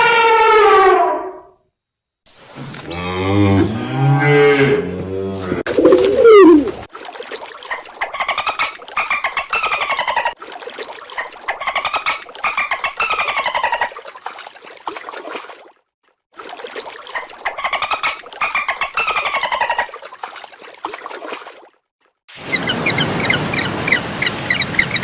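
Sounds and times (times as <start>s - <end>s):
low drawn-out animal call: 0.0s - 1.6s, 2.9s - 6.8s
high falling bird calls: 5.7s - 6.9s.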